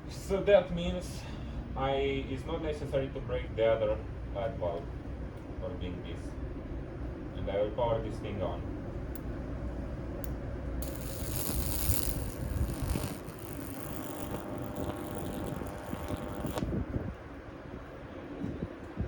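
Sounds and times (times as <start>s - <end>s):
electrical arc crackling and buzzing: 10.8s - 17.1s.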